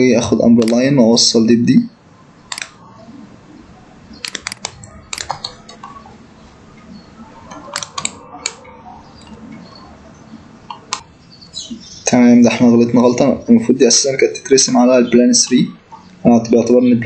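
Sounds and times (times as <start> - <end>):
computer mouse clicking: 0.6 - 0.8, 2.5 - 3.1, 4.2 - 6.1, 7.5 - 9.7, 10.7 - 11.1.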